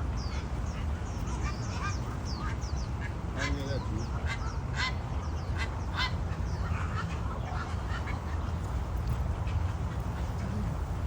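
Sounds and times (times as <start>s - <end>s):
ducks quacking: 0.8s - 8.6s.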